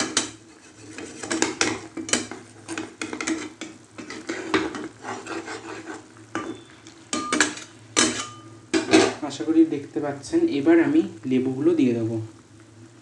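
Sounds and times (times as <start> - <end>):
spoon scraping a cooking pot: 0.0 - 9.2.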